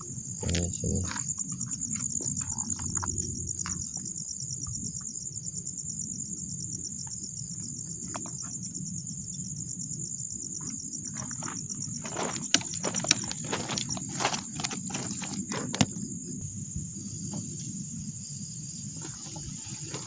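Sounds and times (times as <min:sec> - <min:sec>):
crickets trilling: 0:00.0 - 0:20.0
low rustling and scuffing: 0:10.6 - 0:16.1, 0:19.0 - 0:20.0.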